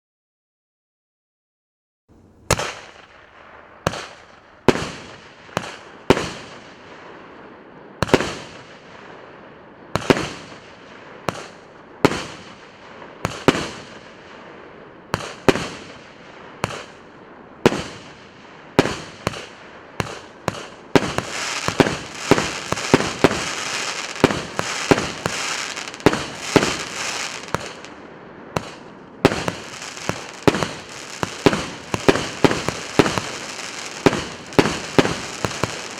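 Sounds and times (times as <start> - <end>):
firework crackling: 2.1 - 6.9, 17.7 - 35.9
firework bangs: 2.1 - 7.3, 9.9 - 14.5, 15.1 - 35.9.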